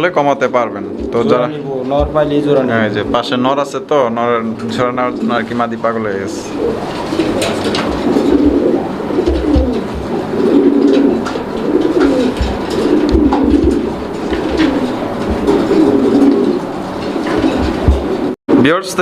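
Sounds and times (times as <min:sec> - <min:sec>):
pigeons cooing: 0:00.0 - 0:03.6, 0:04.4 - 0:18.4
low knocks: 0:01.9 - 0:02.6, 0:07.2 - 0:18.3.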